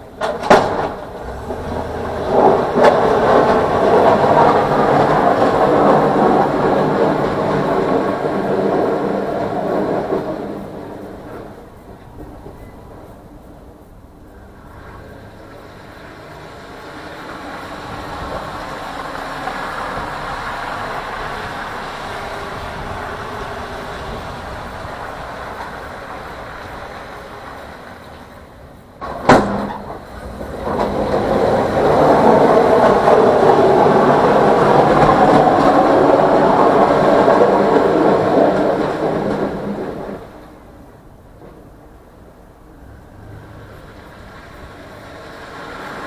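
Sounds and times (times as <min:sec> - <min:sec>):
vehicle noise: 0:00.0 - 0:46.0
steady rumble: 0:00.9 - 0:46.0
sharp knock: 0:29.0 - 0:30.0.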